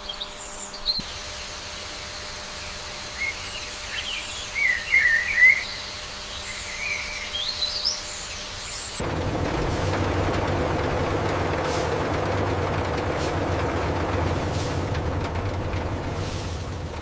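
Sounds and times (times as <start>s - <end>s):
birds chirping: 0.0s - 9.0s
loud wide noise: 9.0s - 17.0s.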